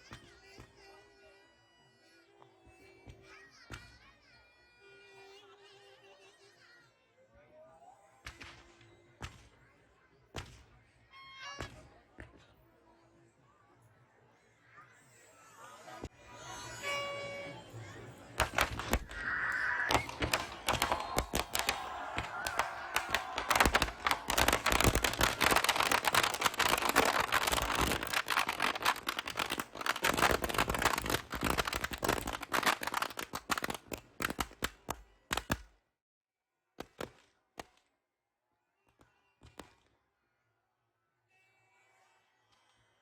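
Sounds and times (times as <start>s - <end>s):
firecrackers cracking and banging: 18.4s - 35.7s.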